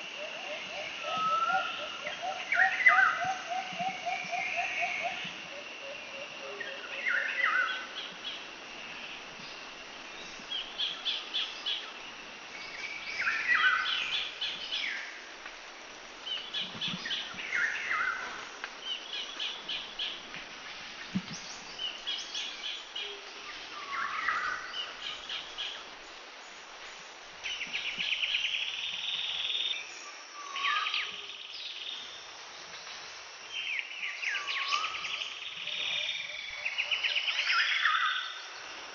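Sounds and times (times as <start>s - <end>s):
outdoor hiss: 0.0s - 38.9s
birds calling: 0.1s - 8.5s.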